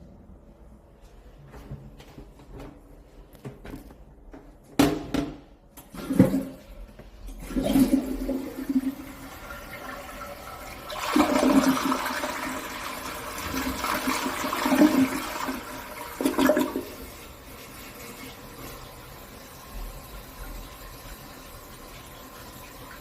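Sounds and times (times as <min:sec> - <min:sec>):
toilet flushing: 0:05.8 - 0:23.0.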